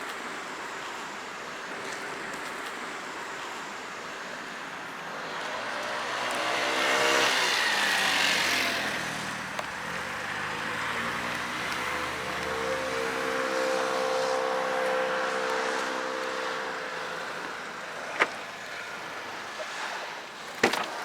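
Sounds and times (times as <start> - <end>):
sports car engine accelerating: 5.1 - 19.6.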